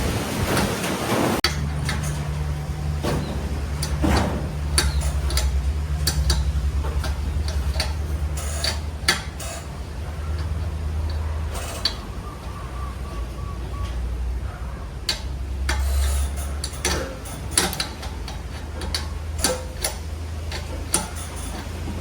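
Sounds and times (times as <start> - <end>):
low pulsing mechanical hum: 0.0 - 22.0
sharp metallic clicks and taps: 4.7 - 9.6, 15.1 - 21.8.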